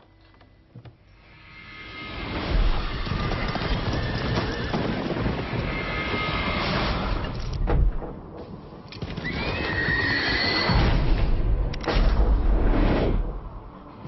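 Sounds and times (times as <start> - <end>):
horses neighing: 9.2 - 10.7.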